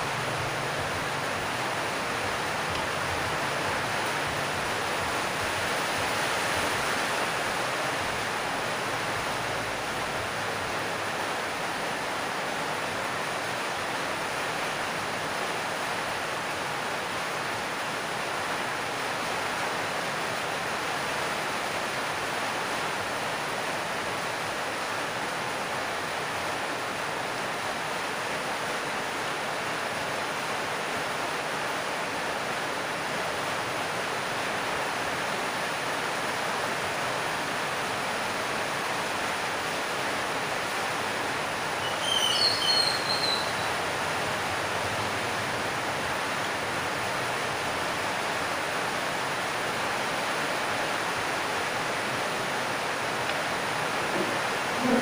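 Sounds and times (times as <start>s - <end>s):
heavy rain on a metal roof: 0.0s - 55.0s.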